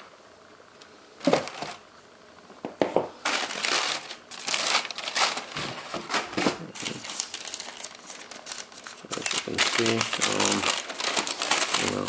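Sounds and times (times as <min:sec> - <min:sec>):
packaging crinkling: 0:03.2 - 0:12.0.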